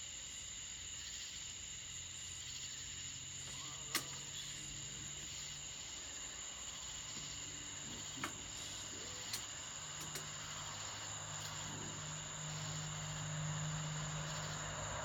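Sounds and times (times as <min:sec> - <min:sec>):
crickets and insects chirping: 0:00.0 - 0:15.0
sharp click: 0:03.5 - 0:04.3, 0:08.2 - 0:10.4.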